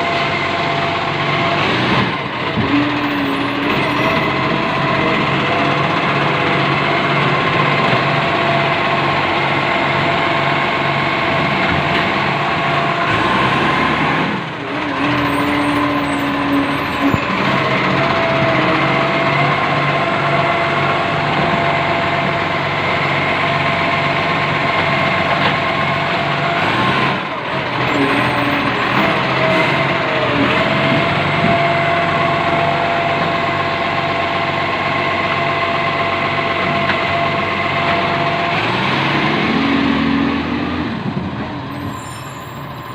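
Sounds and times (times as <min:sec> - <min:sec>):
engine running with whine: 0:00.0 - 0:42.9.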